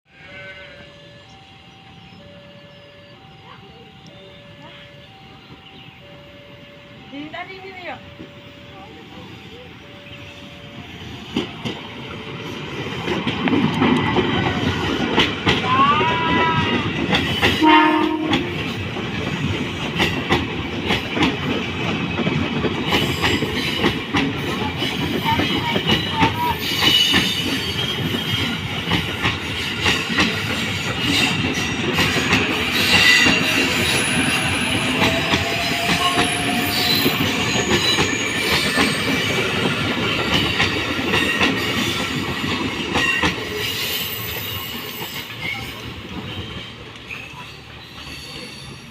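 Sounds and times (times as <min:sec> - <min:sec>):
short train horn: 0:00.1 - 0:01.4, 0:17.5 - 0:18.7
train wheels clattering on rails: 0:11.0 - 0:48.9.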